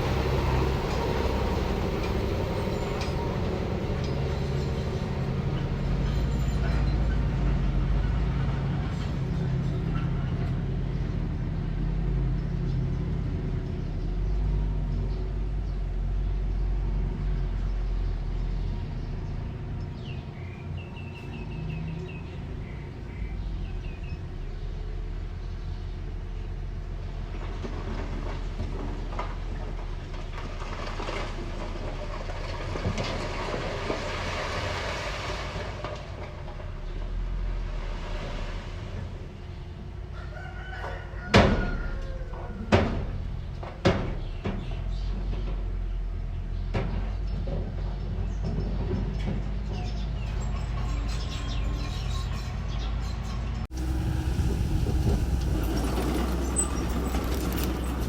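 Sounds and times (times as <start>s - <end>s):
steel tracks clattering: 0.0s - 10.6s, 53.7s - 58.0s
bulldozer diesel engine running: 0.0s - 37.7s, 53.2s - 58.0s
short squeaks: 53.1s - 58.0s
rushing noise: 53.7s - 58.0s.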